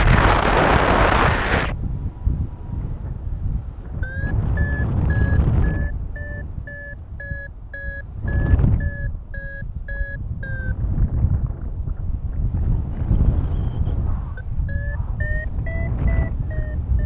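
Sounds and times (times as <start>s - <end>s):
wind rumble on microphone: 0.0s - 17.0s
variometer beeping: 3.8s - 11.1s, 13.3s - 17.0s.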